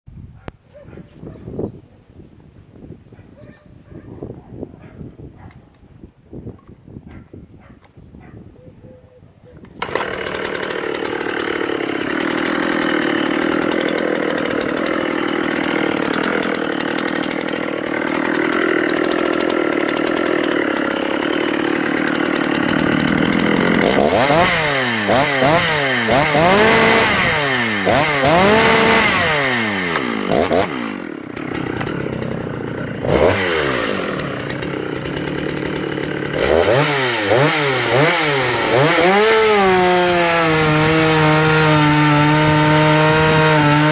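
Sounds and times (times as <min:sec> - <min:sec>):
chainsaw engine revving: 0:09.8 - 0:43.9.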